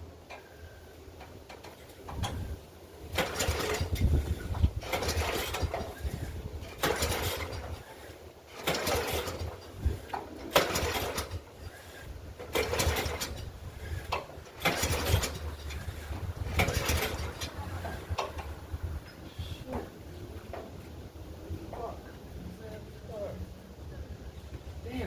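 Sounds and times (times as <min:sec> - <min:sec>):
mower recoil starter cord pulls: 0:03.1 - 0:18.6.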